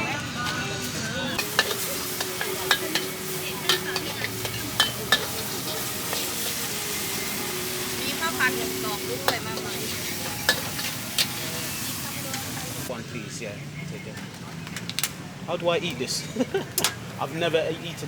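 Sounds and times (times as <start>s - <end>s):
utensils clicking on a pan: 1.4s - 12.8s
food sizzling in a pan: 1.4s - 12.9s.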